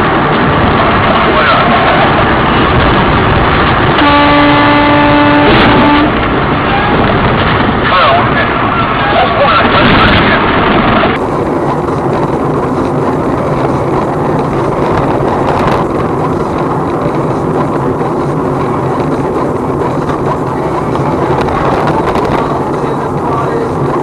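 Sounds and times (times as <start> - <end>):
vehicle engine and road noise: 0.0 - 24.0
wind: 0.0 - 24.0.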